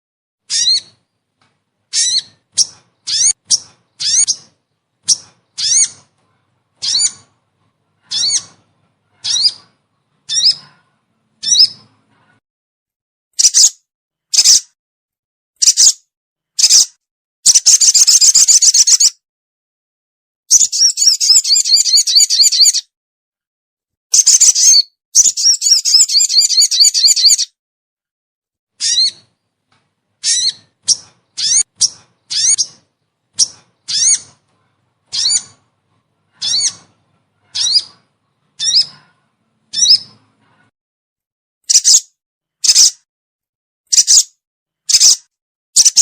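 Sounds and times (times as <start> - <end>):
bird calling with high notes: 1.9 - 5.9, 30.2 - 32.8.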